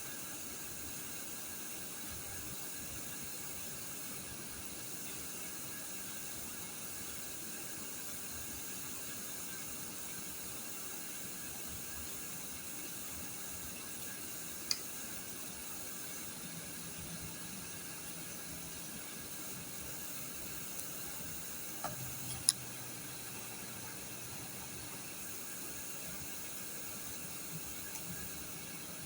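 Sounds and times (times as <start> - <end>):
steady background hiss: 0.0 - 29.0
faint ticks: 27.7 - 28.3.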